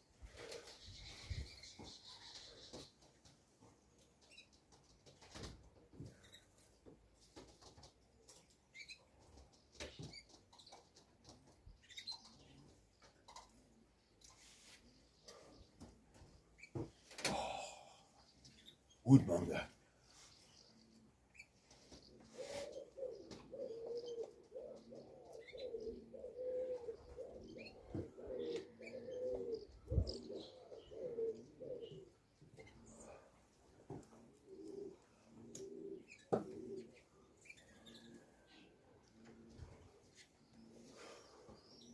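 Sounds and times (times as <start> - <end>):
pigeons cooing: 0.1 - 3.0, 8.3 - 19.6, 20.2 - 41.9.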